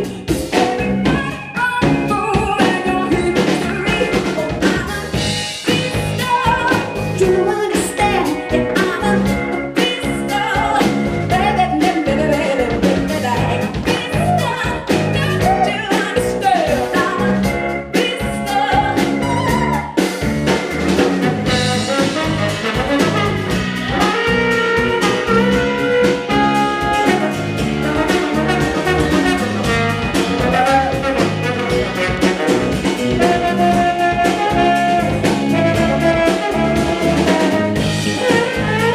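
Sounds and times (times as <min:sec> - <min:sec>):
live jazz-pop band: 0:00.0 - 0:38.9
wordless sliding lead melody: 0:00.0 - 0:38.9.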